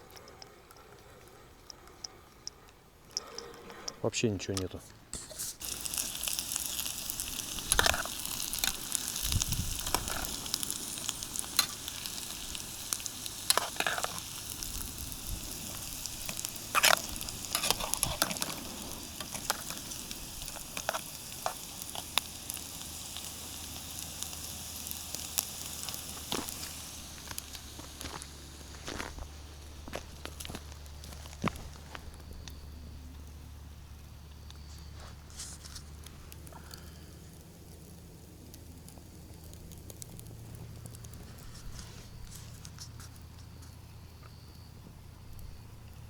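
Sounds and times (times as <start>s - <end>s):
sharp pops and crackles: 0.0s - 46.0s
food sizzling in a pan: 5.2s - 31.8s.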